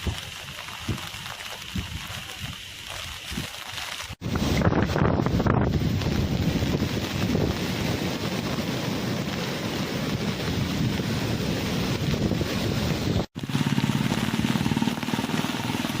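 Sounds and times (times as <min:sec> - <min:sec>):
heavy rain: 0:00.0 - 0:16.0
strong wind buffeting microphone: 0:04.2 - 0:15.0.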